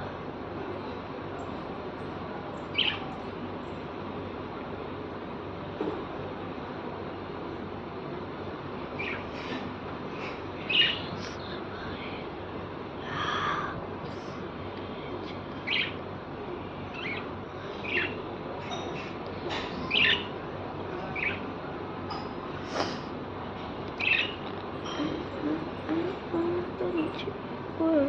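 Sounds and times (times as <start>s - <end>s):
steady background hiss: 0.0s - 28.0s
lovebirds chirping: 8.9s - 9.6s, 10.2s - 11.6s, 15.2s - 16.1s, 16.8s - 19.2s, 19.8s - 20.4s, 21.0s - 21.5s, 23.9s - 27.3s.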